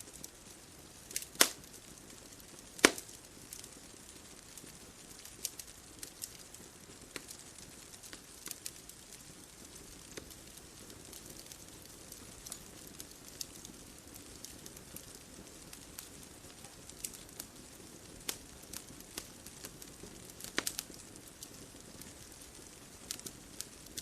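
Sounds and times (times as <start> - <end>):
bonfire crackling: 0.0 - 24.0.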